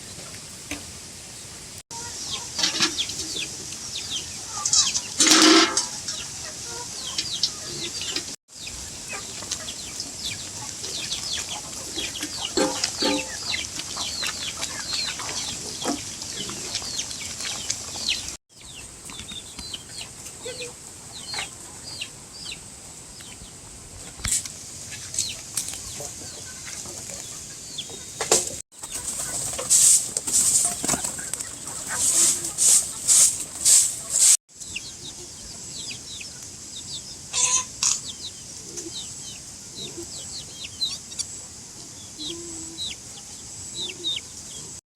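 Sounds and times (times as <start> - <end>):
chickens clucking and peeping: 1.9 - 44.8.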